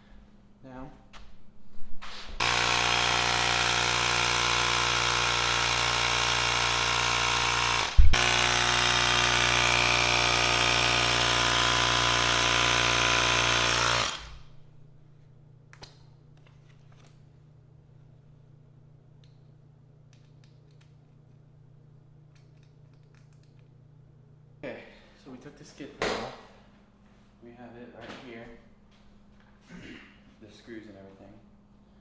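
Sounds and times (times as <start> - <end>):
motor knock: 2.4 - 14.4
small electric motor buzzing: 2.4 - 14.6.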